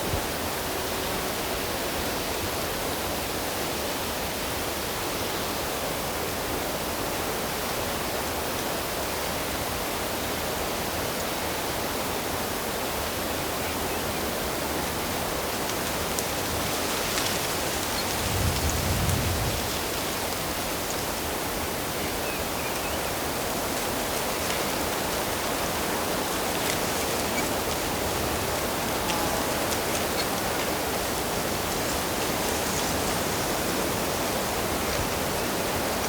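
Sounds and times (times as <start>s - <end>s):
flowing water rushing: 14.4s - 36.0s.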